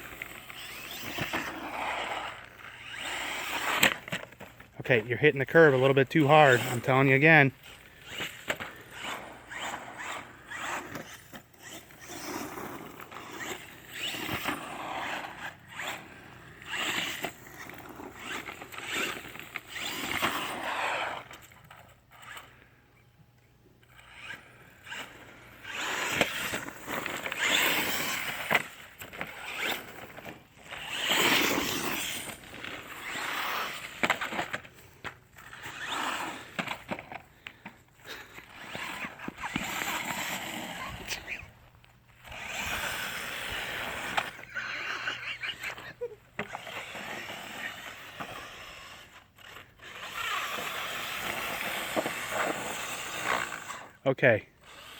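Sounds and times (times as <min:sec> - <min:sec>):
electric motor whirring: 0:00.0 - 0:04.2, 0:06.5 - 0:21.5, 0:23.8 - 0:34.6, 0:42.2 - 0:54.0
tires scrabbling: 0:00.0 - 0:22.3, 0:23.9 - 0:41.6, 0:42.2 - 0:54.0.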